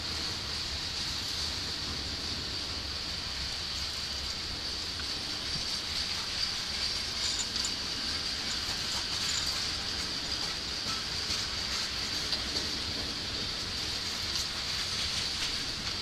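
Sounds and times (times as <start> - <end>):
freight train wheels rumbling: 0.0 - 16.0.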